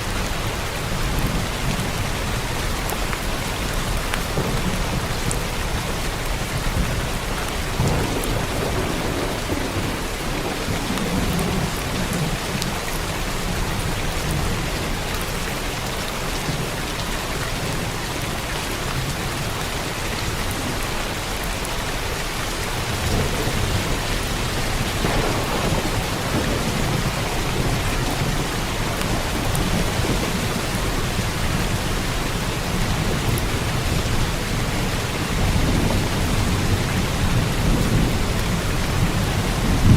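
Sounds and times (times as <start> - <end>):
heavy rain: 0.0 - 39.9
rolling thunder: 3.6 - 14.7, 22.8 - 39.9.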